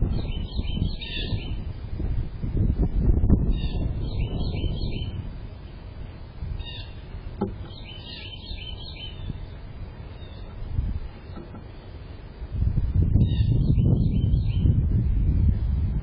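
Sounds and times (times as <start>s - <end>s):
small bird chirping: 0.0s - 1.6s, 3.4s - 5.2s, 6.6s - 10.6s, 13.2s - 14.8s
steady low rumble: 0.0s - 16.0s.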